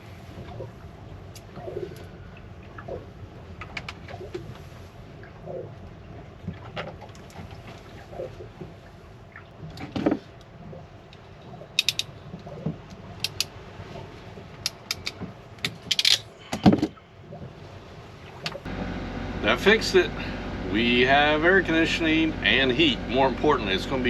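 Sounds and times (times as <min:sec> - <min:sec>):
metallic clicks of hand tools: 0:11.8 - 0:12.1, 0:13.2 - 0:13.5, 0:14.7 - 0:15.2.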